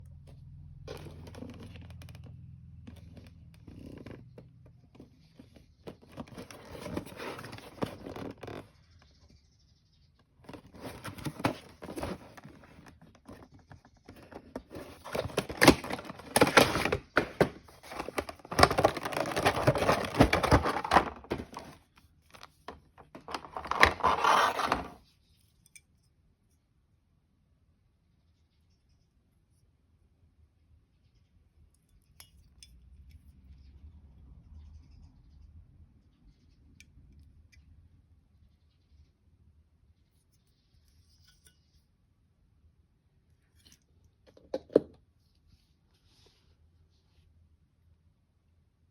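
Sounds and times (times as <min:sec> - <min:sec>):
cardboard and plastic rustling: 0:00.9 - 0:02.3, 0:02.9 - 0:08.8, 0:10.4 - 0:25.0.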